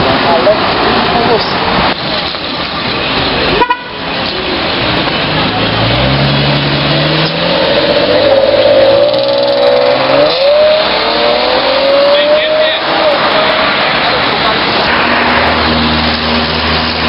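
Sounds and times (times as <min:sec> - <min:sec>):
sports car engine accelerating: 0:04.4 - 0:17.0.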